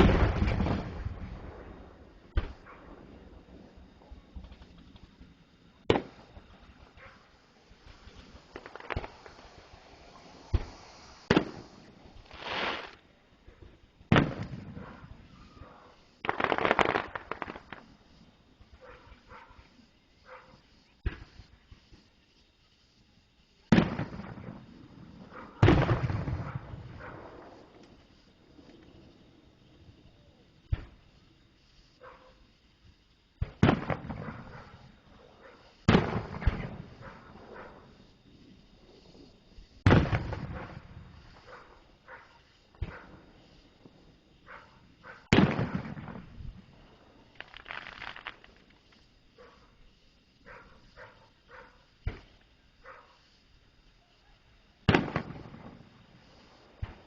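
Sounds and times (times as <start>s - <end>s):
firework crackling: 0.0s - 13.4s, 14.0s - 18.3s, 23.5s - 29.2s, 33.4s - 35.0s, 35.7s - 44.4s, 45.0s - 49.2s, 54.8s - 57.0s
fireworks bangs: 0.0s - 19.0s, 23.6s - 28.3s, 33.4s - 35.0s, 35.7s - 38.1s, 38.7s - 49.0s, 54.8s - 57.0s
faint firework pops: 2.3s - 2.7s, 5.8s - 7.2s, 7.9s - 9.6s, 10.2s - 15.0s, 16.2s - 17.9s, 21.0s - 22.1s, 23.7s - 24.7s, 25.6s - 28.0s, 30.7s - 31.0s, 33.4s - 34.8s, 35.8s - 37.3s, 39.8s - 41.6s, 42.7s - 43.2s, 45.2s - 46.4s, 47.3s - 49.1s, 52.0s - 52.5s, 54.8s - 56.0s, 56.8s - 57.0s
firework rushing hiss: 4.6s - 13.4s, 14.1s - 18.8s, 35.6s - 51.0s, 54.8s - 57.0s.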